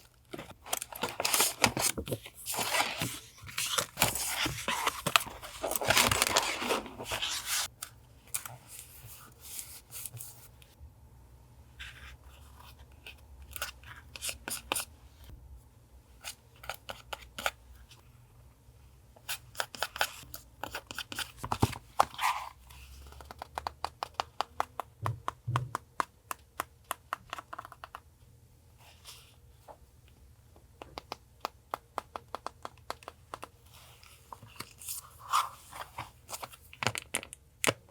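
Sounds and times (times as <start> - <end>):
paper crinkling and tearing: 0.6 - 7.7.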